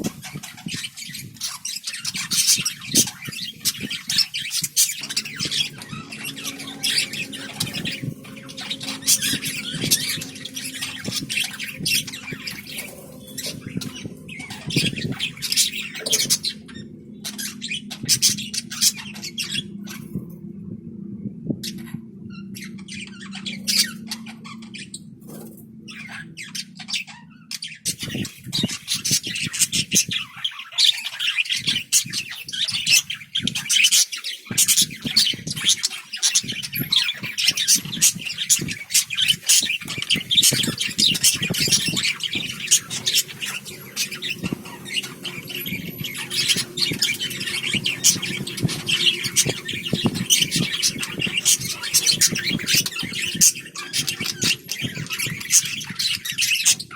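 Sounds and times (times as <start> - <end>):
parrots chattering and squawking: 0.0 - 20.2, 21.6 - 56.9
steady low hum: 2.7 - 28.4, 39.9 - 56.1.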